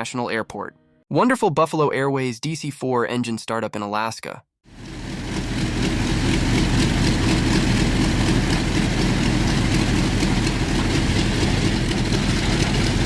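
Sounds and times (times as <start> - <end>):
radial piston engines droning: 4.8 - 13.0.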